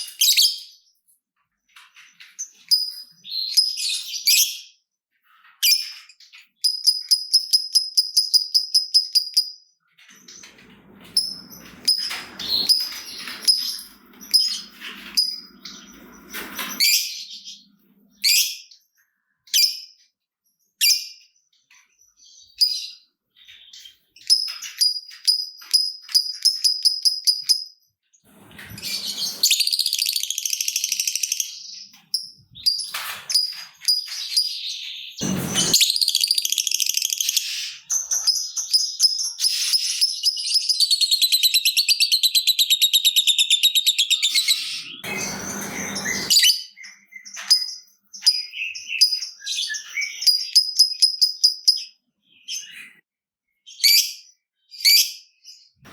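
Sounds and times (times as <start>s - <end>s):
short noisy bursts: 35.2s - 36.2s, 45.0s - 46.5s.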